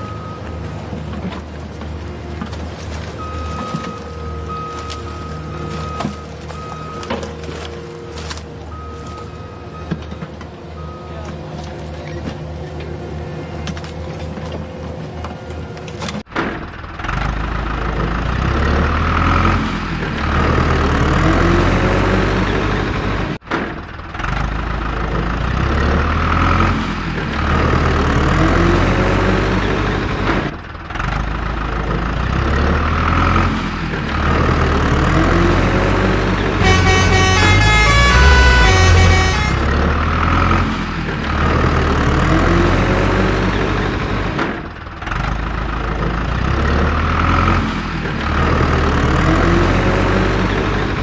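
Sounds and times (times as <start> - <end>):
truck and machinery sound effects: 16.0 - 51.0
plinking melody: 36.6 - 39.8.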